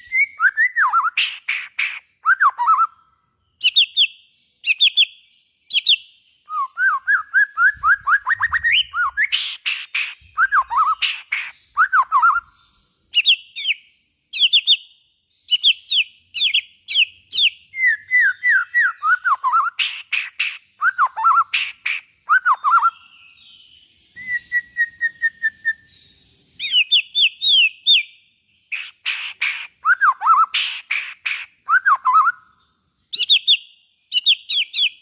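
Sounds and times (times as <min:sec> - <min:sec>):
songbird singing varied song: 0:00.0 - 0:35.0
harsh clicking bird chatter: 0:01.1 - 0:02.1, 0:08.1 - 0:11.6, 0:19.7 - 0:20.7, 0:21.4 - 0:22.2, 0:28.7 - 0:31.6.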